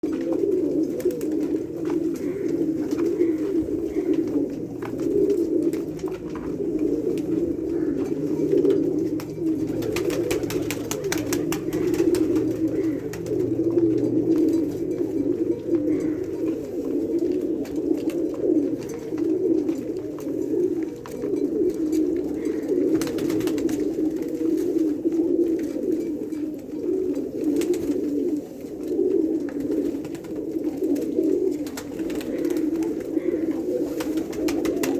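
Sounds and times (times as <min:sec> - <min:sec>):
pigeons cooing: 0:00.0 - 0:34.9.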